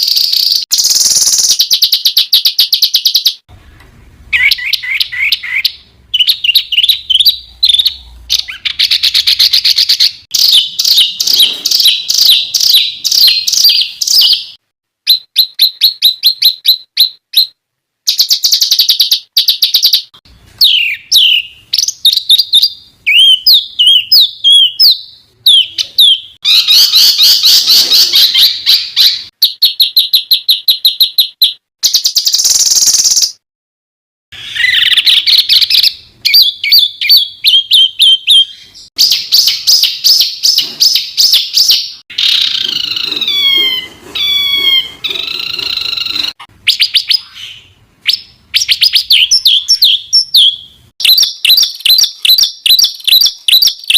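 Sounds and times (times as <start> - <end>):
songbirds trilling and chirping: 4.4 - 14.6, 34.4 - 53.9.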